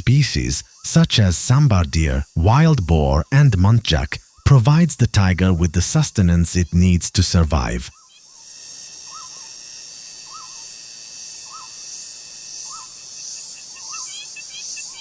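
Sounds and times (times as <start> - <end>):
twittering bird chirps: 0.0 - 8.4, 9.1 - 9.5, 10.2 - 10.6, 12.6 - 15.0
insects buzzing: 0.0 - 15.0.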